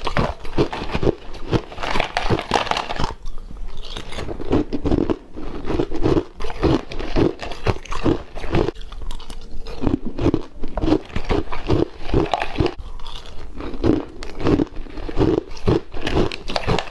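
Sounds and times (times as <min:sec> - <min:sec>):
crunchy chewing: 0:00.0 - 0:16.9.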